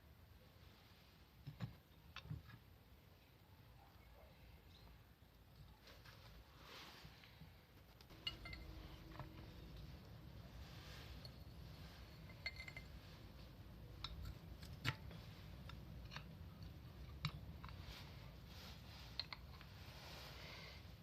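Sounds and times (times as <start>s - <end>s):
small metal parts clinking: 8.1s - 9.9s, 11.2s - 13.4s.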